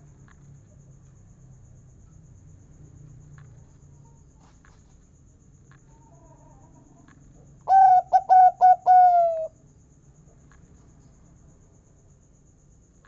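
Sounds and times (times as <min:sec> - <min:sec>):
faint ticks: 0:00.0 - 0:07.6, 0:10.1 - 0:11.3
dove cooing: 0:07.7 - 0:09.5.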